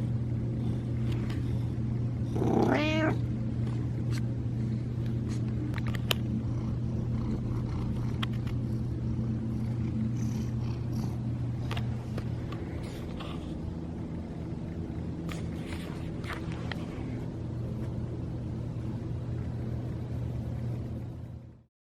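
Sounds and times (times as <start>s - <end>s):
steady low hum: 0.0s - 21.7s
cat meowing: 2.4s - 3.2s.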